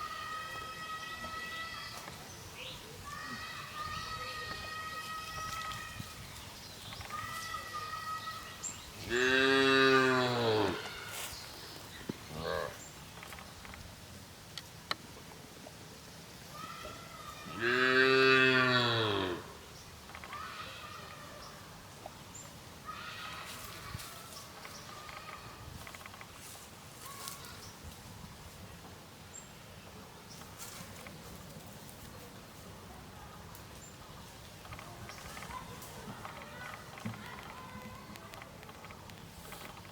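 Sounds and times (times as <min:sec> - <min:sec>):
cow mooing: 0:09.1 - 0:10.8, 0:17.6 - 0:19.5.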